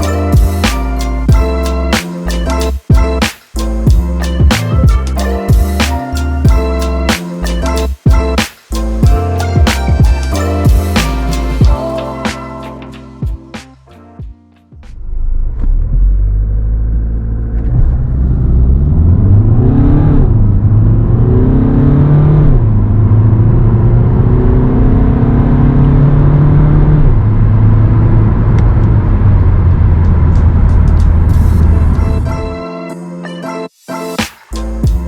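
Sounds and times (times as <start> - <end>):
car engine accelerating: 15.1 - 32.1.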